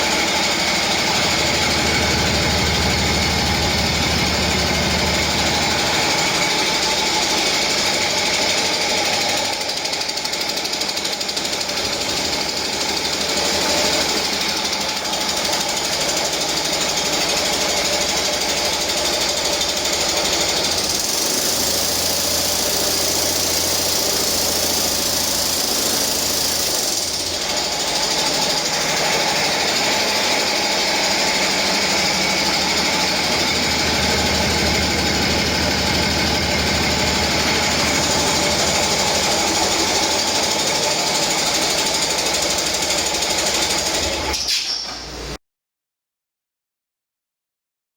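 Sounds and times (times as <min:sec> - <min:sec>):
diesel engine running: 0:00.0 - 0:44.3.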